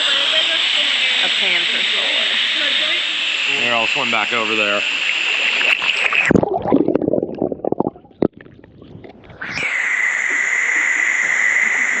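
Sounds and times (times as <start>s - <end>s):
muffled underwater gurgling: 0.3s - 9.6s.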